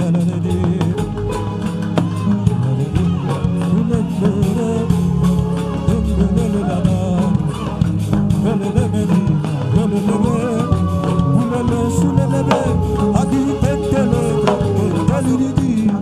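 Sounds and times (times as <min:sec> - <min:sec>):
instrumental worship accompaniment: 0:00.0 - 0:16.0
voices singing: 0:00.0 - 0:16.0.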